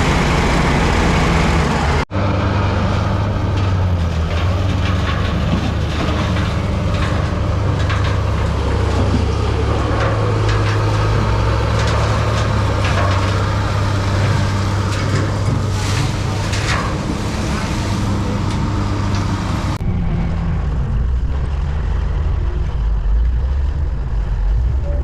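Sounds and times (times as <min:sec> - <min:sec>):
bulldozer diesel engine running: 0:00.0 - 0:25.0
clanks and rattles: 0:03.4 - 0:19.8.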